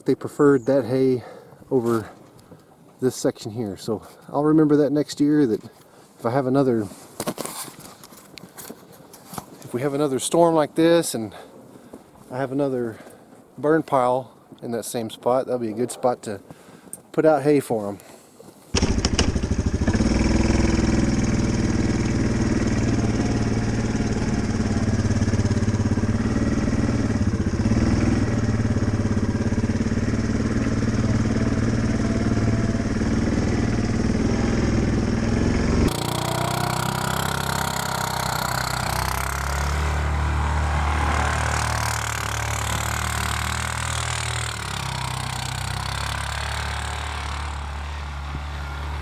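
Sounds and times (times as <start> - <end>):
vehicle engine running: 18.8 - 49.0.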